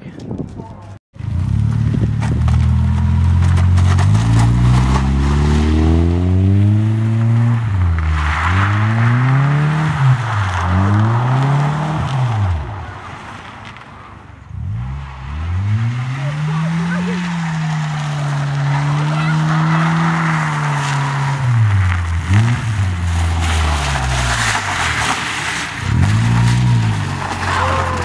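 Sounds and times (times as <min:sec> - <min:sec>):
car engine revving hard: 0:02.4 - 0:12.6, 0:14.6 - 0:24.7.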